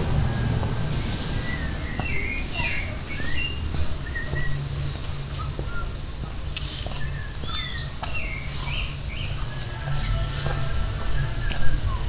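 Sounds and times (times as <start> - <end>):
steady low rumble: 0.0 - 3.0
birds chirping and whistling: 0.0 - 6.0, 6.6 - 12.0.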